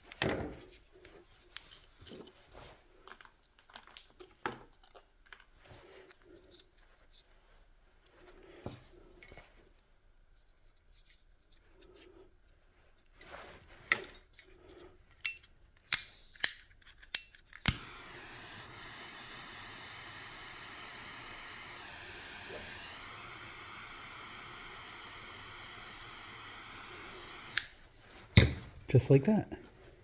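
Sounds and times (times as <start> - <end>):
gas torch igniter clicks: 15.2 - 28.6
gas torch hissing flame: 15.2 - 29.2.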